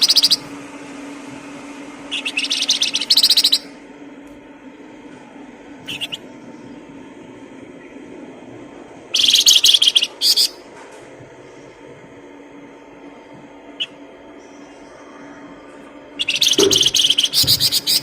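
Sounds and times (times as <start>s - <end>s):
faint steady hum: 0.0s - 18.0s
songbird chirping: 2.1s - 3.7s, 9.2s - 10.6s, 16.2s - 18.0s.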